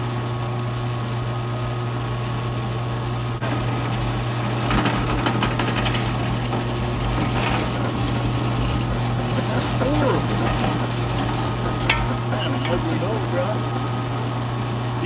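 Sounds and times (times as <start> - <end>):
motor running steadily: 0.0 - 15.0
rattling: 4.6 - 13.0.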